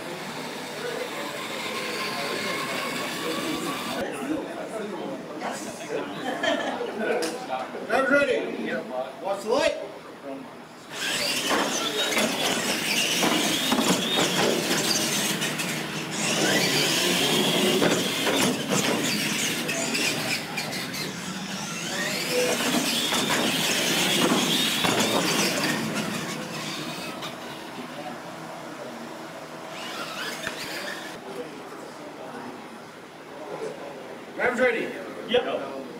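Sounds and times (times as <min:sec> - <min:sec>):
high whine of toy truck motors: 0:00.0 - 0:04.0, 0:10.8 - 0:31.2
tyre squeals: 0:10.9 - 0:27.7, 0:29.8 - 0:31.2.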